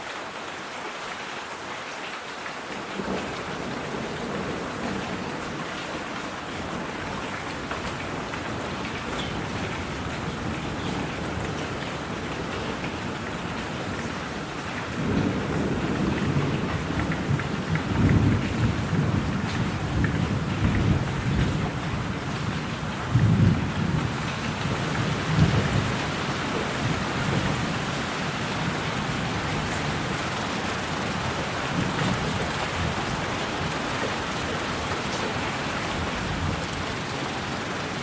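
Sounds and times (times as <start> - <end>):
steady rain: 0.0 - 38.0
thunder rumble: 6.7 - 33.9.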